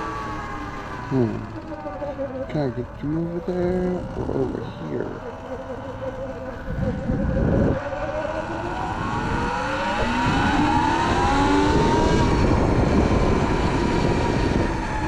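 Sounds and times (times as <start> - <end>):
electric motorbike motor whine: 0.0 - 15.0
wind noise on microphone: 6.5 - 15.0.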